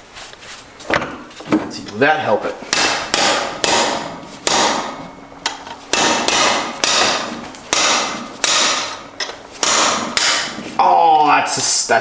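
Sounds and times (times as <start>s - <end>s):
hammer striking metal: 2.7s - 10.6s.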